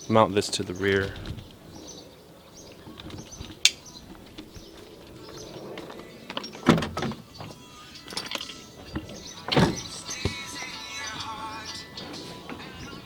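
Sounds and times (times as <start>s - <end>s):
dull thud: 9.0s - 10.5s.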